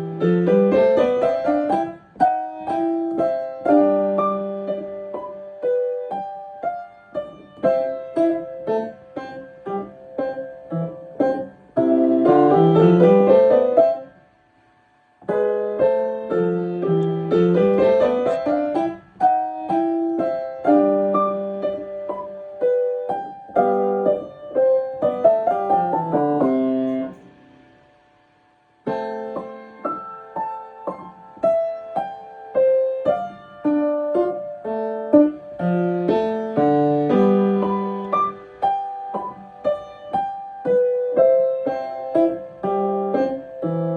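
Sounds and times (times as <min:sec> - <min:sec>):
piano scale runs: 0:00.0 - 0:14.1, 0:15.2 - 0:27.3.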